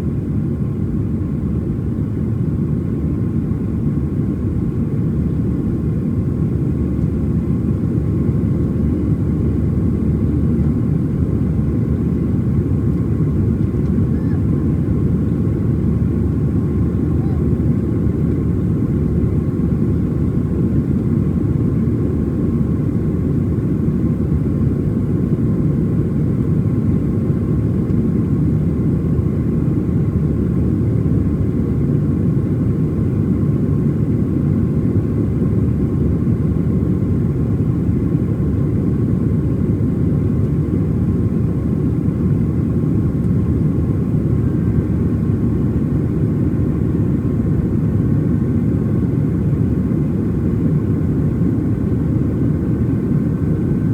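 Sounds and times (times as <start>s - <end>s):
jet engine roar in cabin: 0.0s - 53.9s.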